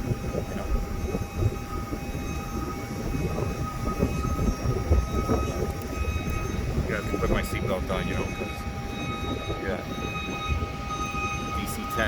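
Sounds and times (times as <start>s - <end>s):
faint steady whine: 0.0s - 12.0s
road noise rumble: 0.0s - 12.0s.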